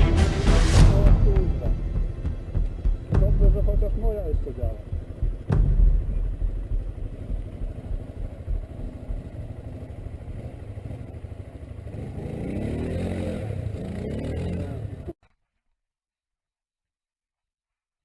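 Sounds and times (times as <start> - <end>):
quad bike engine rumbling: 0.9 - 15.2.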